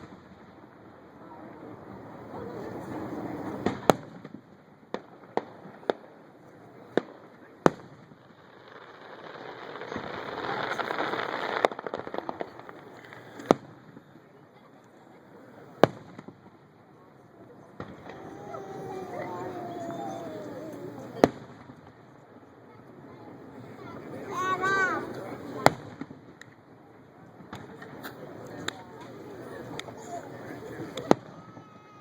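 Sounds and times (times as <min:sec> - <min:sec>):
fireworks bangs: 0:00.0 - 0:14.2, 0:15.6 - 0:16.8, 0:17.6 - 0:22.3, 0:23.5 - 0:26.6, 0:27.4 - 0:32.0
fireworks crackling pops: 0:00.0 - 0:15.0, 0:15.6 - 0:16.9, 0:17.7 - 0:32.0.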